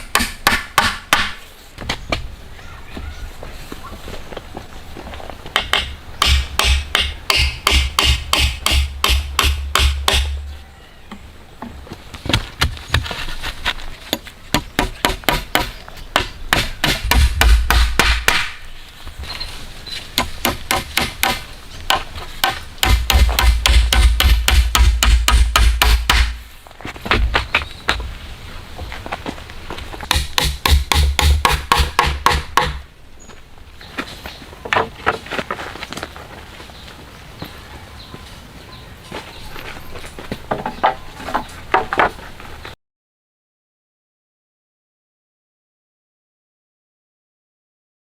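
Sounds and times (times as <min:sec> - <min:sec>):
hammering: 0:00.0 - 0:01.4, 0:05.6 - 0:10.5, 0:14.1 - 0:18.6, 0:20.2 - 0:26.4, 0:30.0 - 0:32.9.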